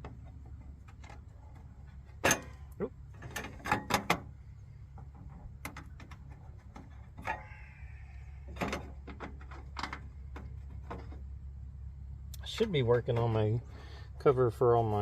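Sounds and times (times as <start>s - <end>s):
knocks and clatter of parts handled: 0.0s - 4.3s, 4.9s - 7.4s, 8.5s - 11.3s
steady low hum: 0.0s - 15.0s.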